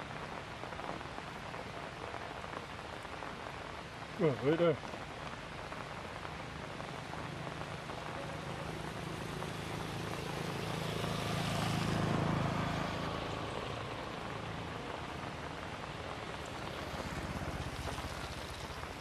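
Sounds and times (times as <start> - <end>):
steady rain falling: 0.0 - 19.0
passing vehicle engine hum: 8.6 - 18.9.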